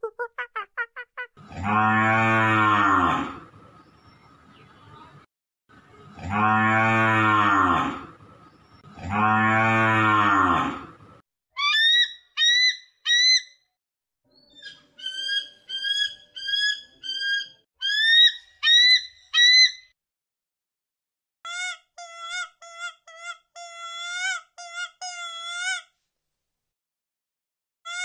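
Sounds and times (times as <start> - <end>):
cow mooing: 1.5 - 3.4, 6.2 - 8.1, 9.0 - 11.0
eagle piping call and chirps: 11.6 - 13.5, 14.4 - 19.8.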